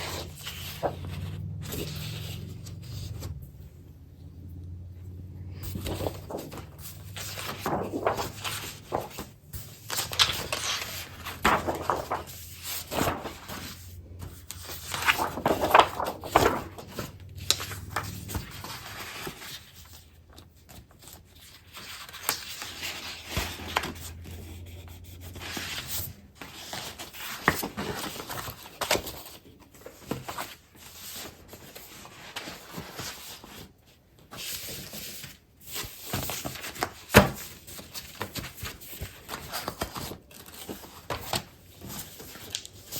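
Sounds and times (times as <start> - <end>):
paper rustling and sliding: 0.0 - 3.7, 5.5 - 42.9.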